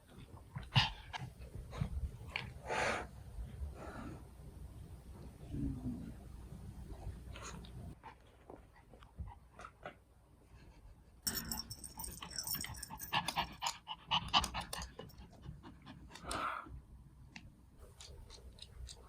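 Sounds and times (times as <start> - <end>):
dog panting: 11.8 - 16.5.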